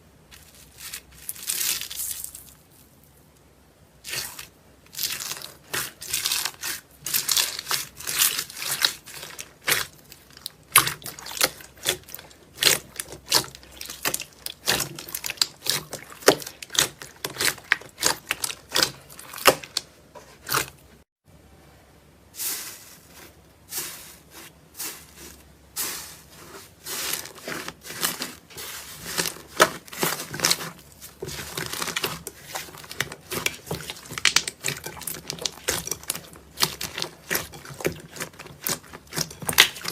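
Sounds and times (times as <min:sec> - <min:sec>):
slime crackling and popping: 0:04.1 - 0:19.9, 0:26.9 - 0:39.9.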